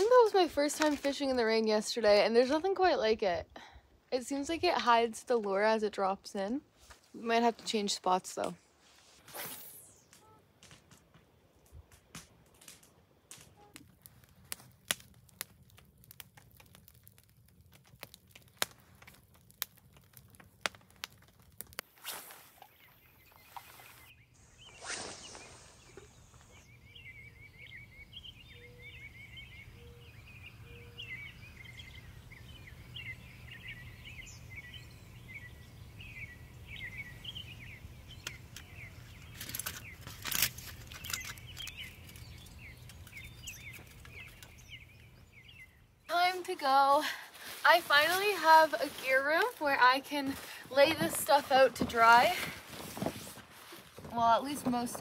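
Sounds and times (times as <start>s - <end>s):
small birds chirping: 13.2s - 55.0s.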